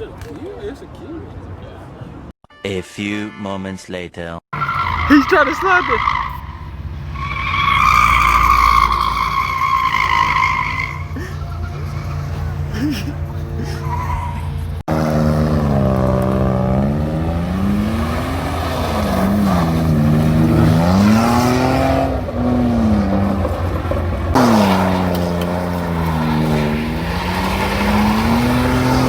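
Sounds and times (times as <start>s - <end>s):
car engine revving hard: 14.8s - 29.0s.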